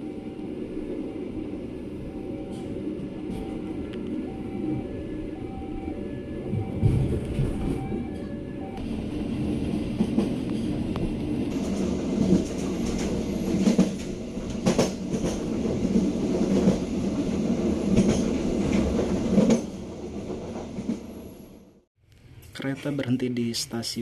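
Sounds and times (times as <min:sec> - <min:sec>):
train wheels rumbling on rails: 0:06.4 - 0:21.6.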